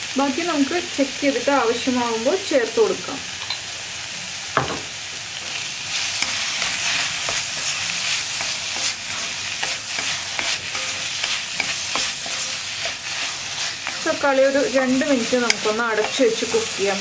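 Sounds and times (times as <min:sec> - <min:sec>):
tomatoes sizzling in hot oil: 0:00.0 - 0:17.0
wooden spatula scraping a pan: 0:05.9 - 0:17.0.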